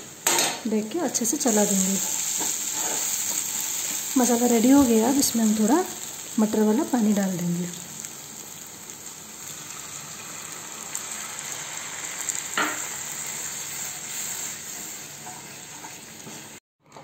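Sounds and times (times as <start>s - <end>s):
masala sizzling in hot oil: 0.0s - 17.0s.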